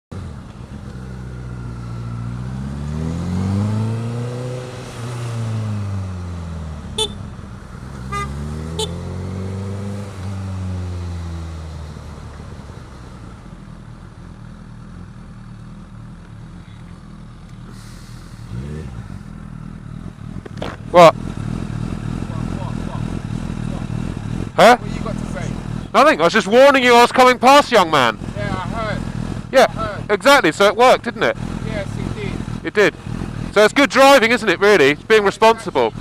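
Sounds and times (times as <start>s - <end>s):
vehicle engine revving: 0.1s - 36.0s
car horn toots: 6.9s - 7.3s, 8.0s - 9.1s.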